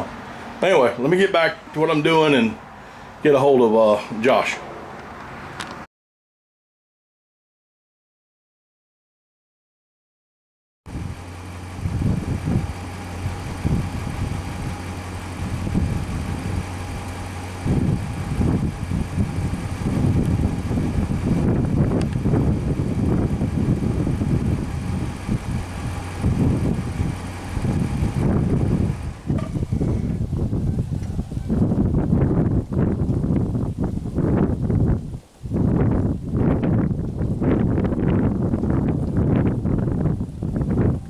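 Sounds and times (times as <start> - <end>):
vehicle engine running: 10.9 - 33.7
uneven low rumbling: 10.9 - 41.0.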